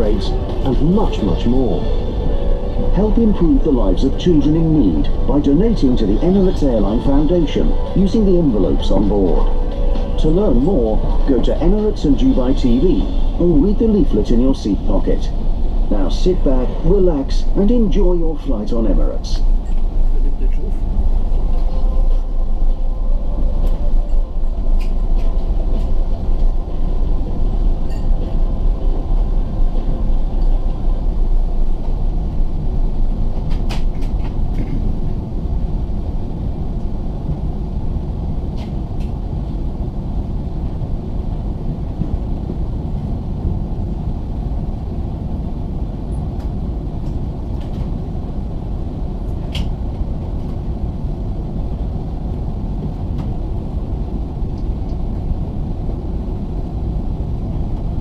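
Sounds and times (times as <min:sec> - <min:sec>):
low engine rumble: 0:00.0 - 0:58.0.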